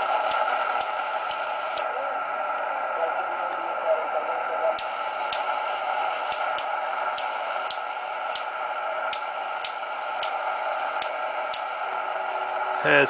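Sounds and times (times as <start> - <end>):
radio static hiss: 0.0 - 13.0
sharp ticks: 0.3 - 1.9, 6.3 - 8.5, 9.1 - 10.4, 11.0 - 11.7.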